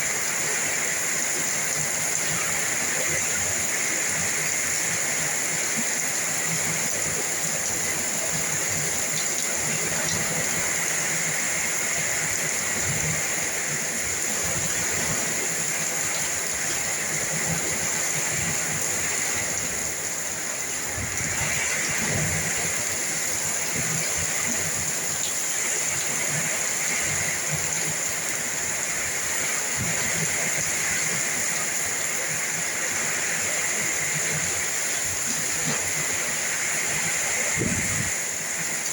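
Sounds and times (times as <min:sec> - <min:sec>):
heavy rain pouring: 0:00.0 - 0:38.9
gusty wind rumbling: 0:37.5 - 0:38.3.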